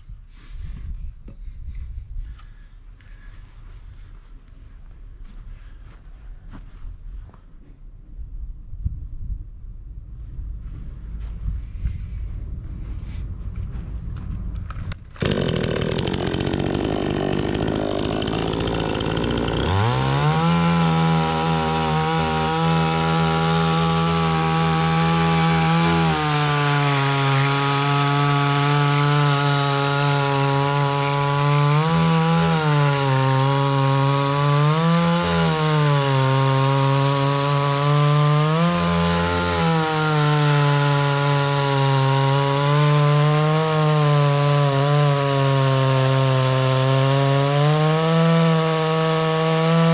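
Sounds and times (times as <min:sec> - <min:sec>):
chainsaw engine cutting wood: 0:14.9 - 0:49.9.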